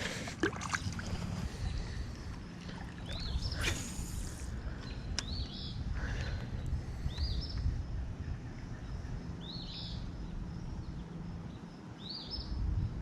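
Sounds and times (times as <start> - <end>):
steady low rumble: 0.0 - 11.8.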